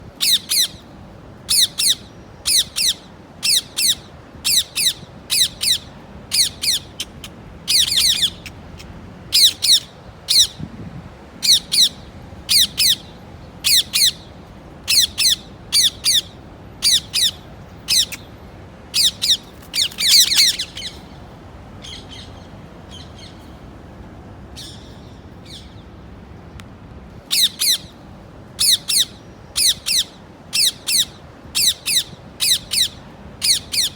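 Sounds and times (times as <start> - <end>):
parrot squawking: 1.5 - 10.6, 14.9 - 18.2, 19.0 - 21.0, 27.3 - 27.9, 28.6 - 33.9.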